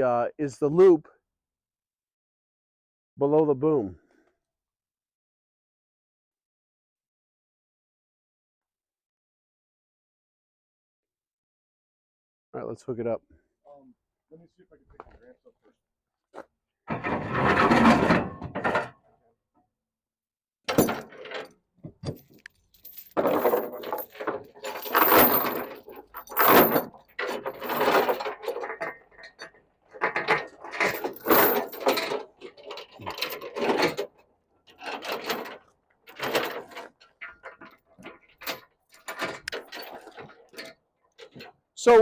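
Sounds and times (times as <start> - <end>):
chain clanking and rattling: 16.9 - 19.0, 20.7 - 41.6.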